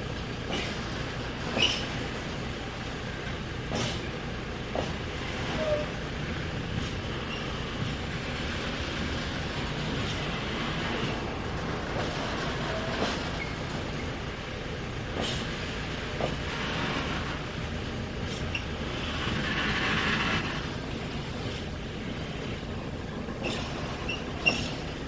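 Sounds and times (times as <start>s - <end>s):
diesel rail vehicle rumbling: 0.0s - 25.0s
wheels clicking over rail joints: 0.1s - 25.0s.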